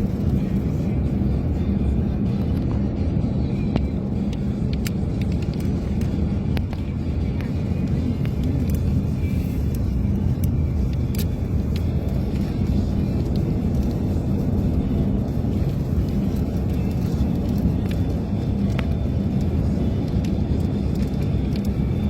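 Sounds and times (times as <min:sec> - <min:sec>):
music: 0:00.0 - 0:22.0
vehicle rumble: 0:00.0 - 0:22.0
light ticks: 0:03.7 - 0:14.9, 0:15.5 - 0:21.8.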